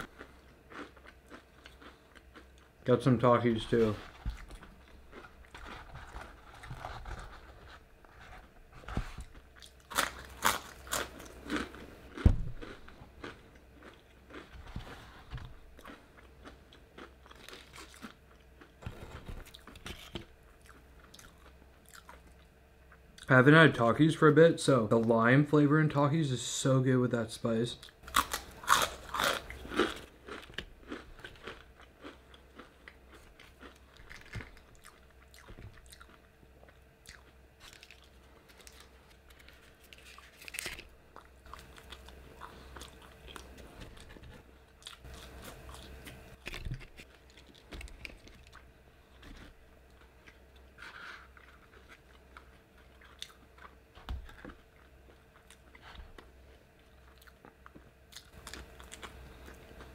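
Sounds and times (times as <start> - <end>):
crunchy food bites: 0.0 - 2.6, 9.3 - 14.5, 28.0 - 44.2
chewing with mouth clicks: 0.0 - 2.7, 28.1 - 48.7, 49.3 - 59.9.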